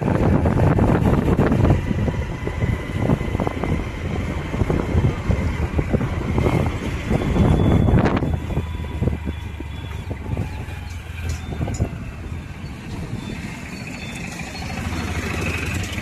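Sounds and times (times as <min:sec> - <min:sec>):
vehicle drone: 0:00.0 - 0:16.0
wind buffeting microphone: 0:00.0 - 0:16.0.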